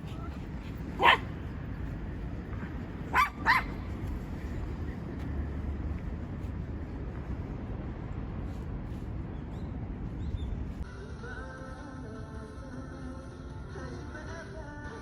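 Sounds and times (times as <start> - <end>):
small dog yipping: 1.0 - 1.3, 3.1 - 3.8.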